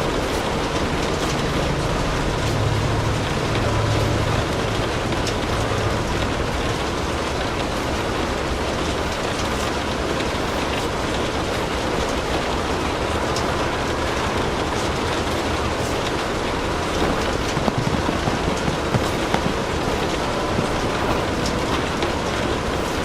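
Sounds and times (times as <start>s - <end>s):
steady rain: 0.0s - 23.0s
wood fire crackling: 0.0s - 23.0s
low rumble: 14.3s - 22.8s.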